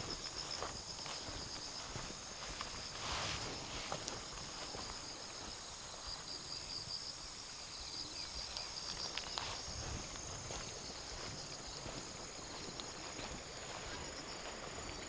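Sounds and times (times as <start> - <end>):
light footsteps: 0.0 - 5.6, 8.8 - 15.0
insects trilling: 0.0 - 15.0.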